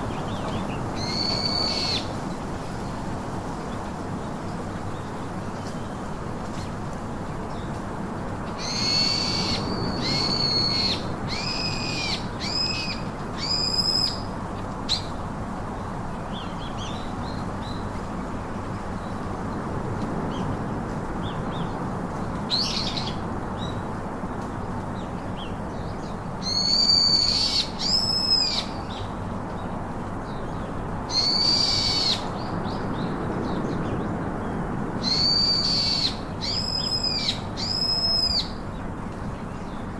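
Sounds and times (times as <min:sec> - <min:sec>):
bird high arching calls: 0:01.0 - 0:02.1, 0:08.6 - 0:14.2, 0:26.4 - 0:29.0, 0:31.1 - 0:32.4, 0:35.0 - 0:38.6.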